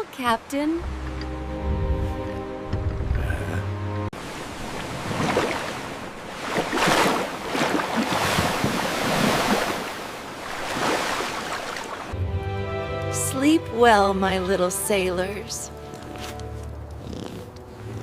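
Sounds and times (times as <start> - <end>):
ocean waves washing in: 4.2 - 12.2.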